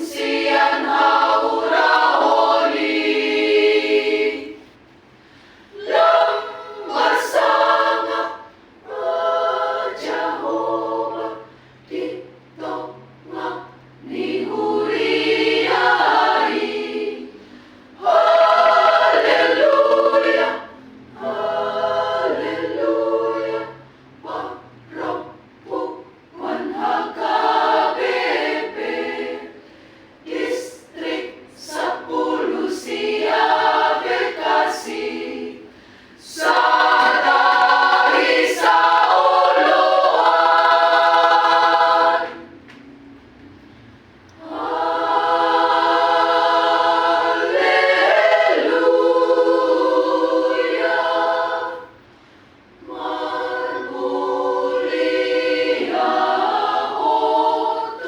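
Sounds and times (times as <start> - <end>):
choir singing unaccompanied: 0.0 - 4.8, 5.7 - 42.8, 44.4 - 58.0.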